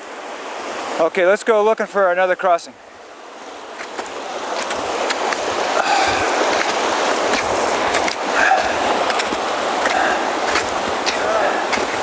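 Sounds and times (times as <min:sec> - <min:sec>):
rushing creek water: 0:00.0 - 0:12.0
footsteps on rocky ground: 0:03.8 - 0:12.0.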